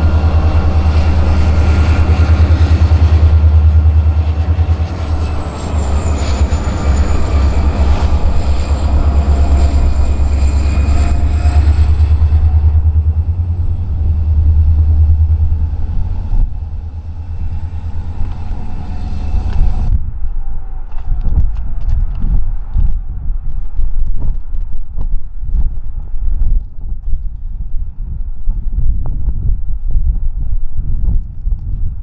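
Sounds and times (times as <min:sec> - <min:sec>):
locomotive engines throbbing: 0:00.0 - 0:20.1
faint high whine: 0:00.0 - 0:21.8.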